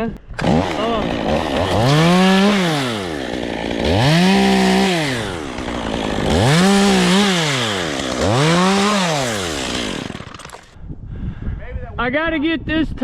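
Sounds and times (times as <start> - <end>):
chainsaw revving: 0.4 - 10.8.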